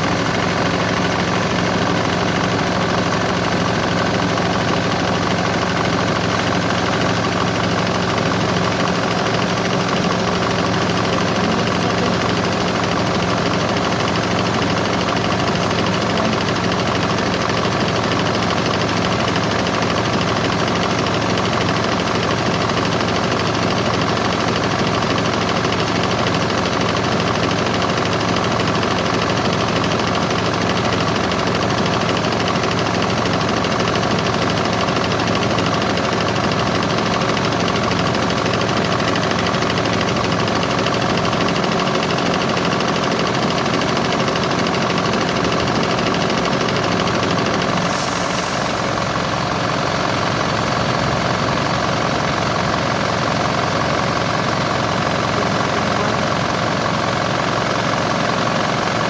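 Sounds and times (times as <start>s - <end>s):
engine idling: 0.0s - 59.0s
brief sharp sound: 47.8s - 49.6s.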